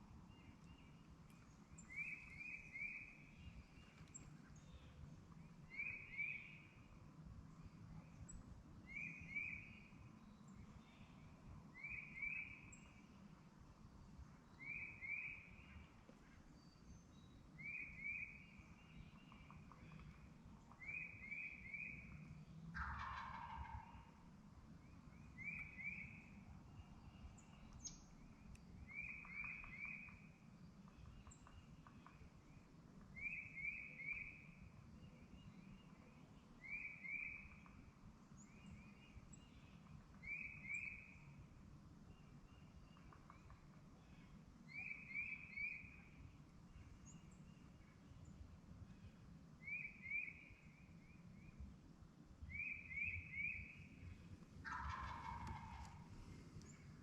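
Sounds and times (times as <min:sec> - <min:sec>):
turkey gobbling: 0:22.8 - 0:24.1, 0:54.6 - 0:56.3.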